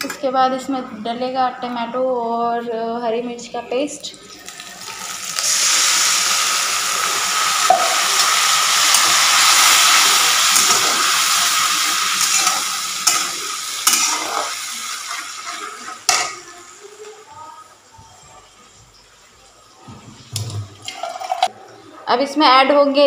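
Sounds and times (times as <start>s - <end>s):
paste sizzling in hot oil: 4.3s - 16.6s.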